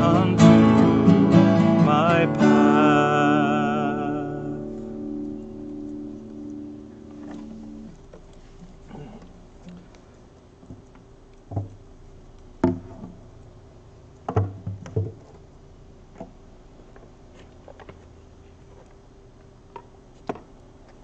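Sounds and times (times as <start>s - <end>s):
faint steady hum: 0.0s - 21.0s
objects knocking and bumping: 14.3s - 15.4s.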